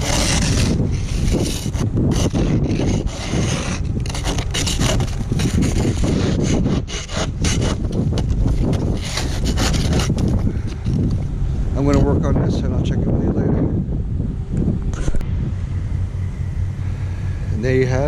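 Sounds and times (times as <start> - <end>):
ice scraper scraping ice: 0.0 - 11.2.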